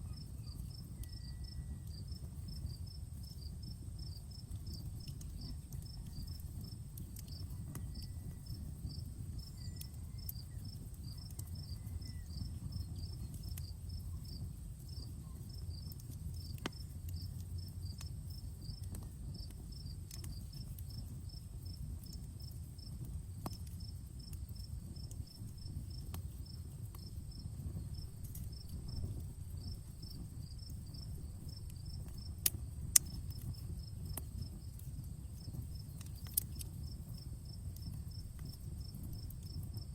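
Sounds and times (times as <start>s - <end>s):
crickets chirping: 0.0s - 39.9s
campfire crackling and popping: 0.2s - 39.9s
steady low rumble: 21.2s - 39.9s.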